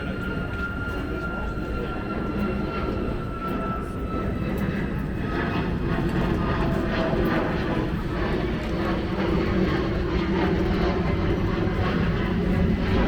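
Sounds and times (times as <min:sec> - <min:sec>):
faint engine whine: 0:00.0 - 0:13.0.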